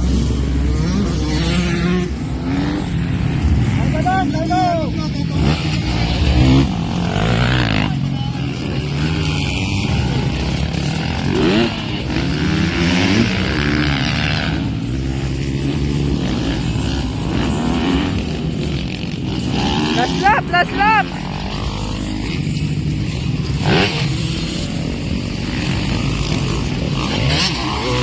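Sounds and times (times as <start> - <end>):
motorcycle engines revving: 0.0 - 28.0.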